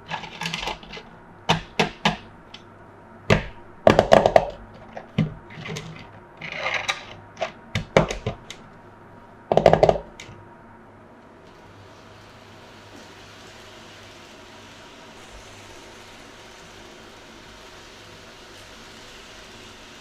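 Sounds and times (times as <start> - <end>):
plastic parts clicking and clattering: 0.1 - 1.0, 3.9 - 8.6.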